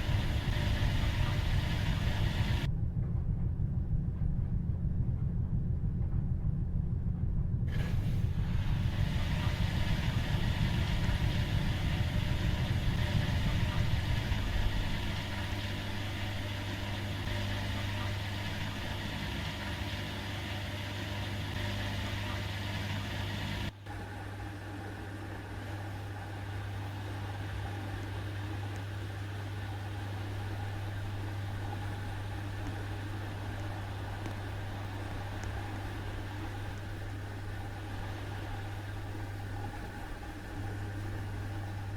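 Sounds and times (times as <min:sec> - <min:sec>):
washing machine running: 0:00.0 - 0:41.9.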